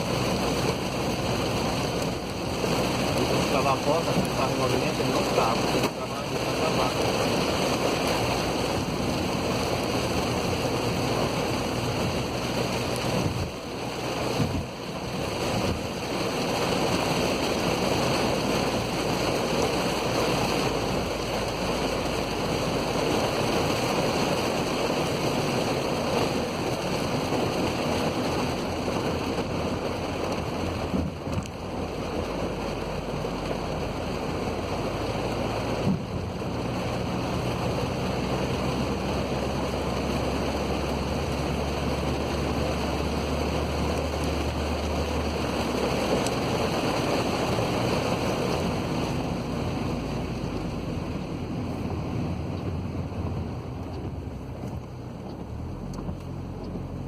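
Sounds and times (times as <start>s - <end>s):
heavy rain: 0.0s - 57.0s
low engine hum: 0.0s - 57.0s
tyres on a wet road: 0.0s - 57.0s.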